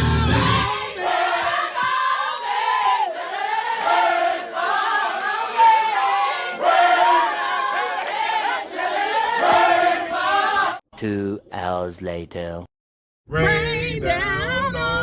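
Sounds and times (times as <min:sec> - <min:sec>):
music with heavy bass: 0:00.0 - 0:00.7
voices singing unaccompanied: 0:00.0 - 0:10.8, 0:13.3 - 0:15.0.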